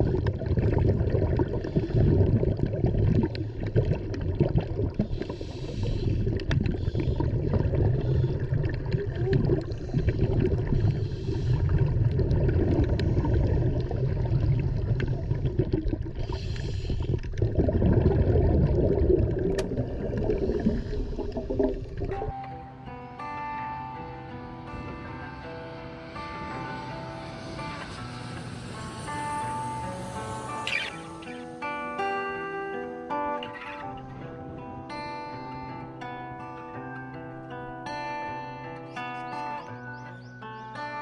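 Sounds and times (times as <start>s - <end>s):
hissing water: 0.0s - 22.4s, 25.6s - 31.7s
water rushing and gurgling: 0.0s - 22.4s, 24.5s - 31.6s.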